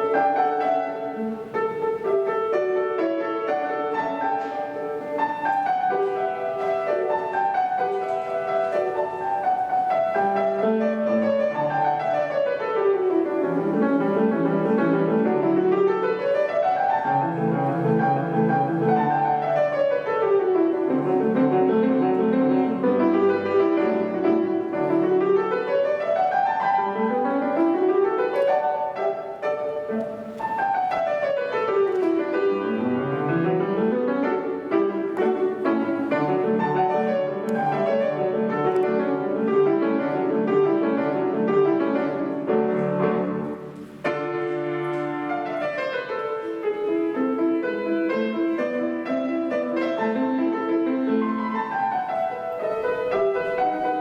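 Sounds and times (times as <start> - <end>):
solo piano scale runs: 0.0 - 54.0.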